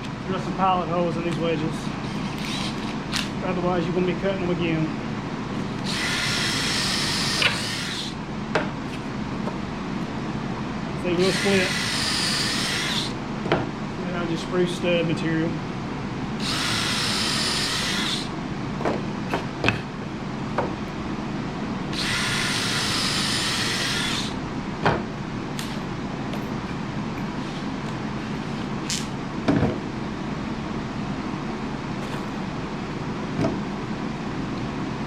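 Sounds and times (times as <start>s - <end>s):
power drill running: 2.0s - 3.1s, 5.8s - 8.2s, 11.1s - 13.2s, 16.4s - 18.3s, 21.9s - 24.4s.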